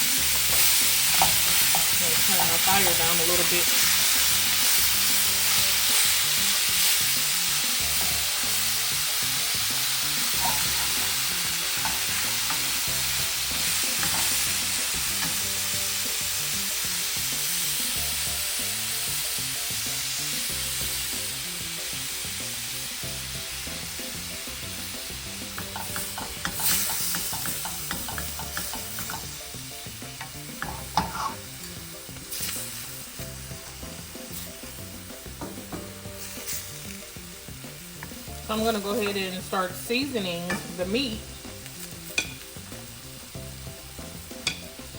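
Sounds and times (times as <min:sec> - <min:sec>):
meat sizzling in a skillet: 0:00.0 - 0:44.9
utensil scraping in a pan: 0:09.9 - 0:15.5, 0:25.5 - 0:29.3, 0:30.2 - 0:34.8, 0:35.6 - 0:37.1.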